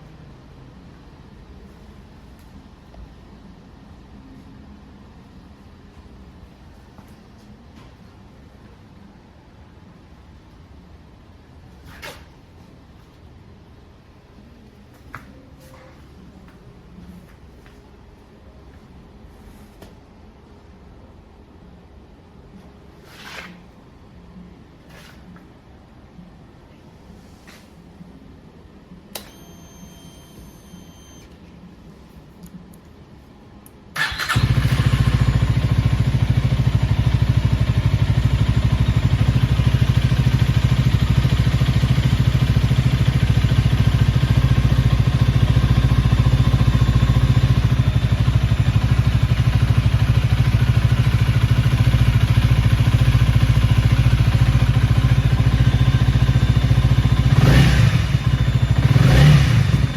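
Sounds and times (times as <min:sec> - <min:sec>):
motorcycle engine starting and idling: 0:33.9 - 0:59.9.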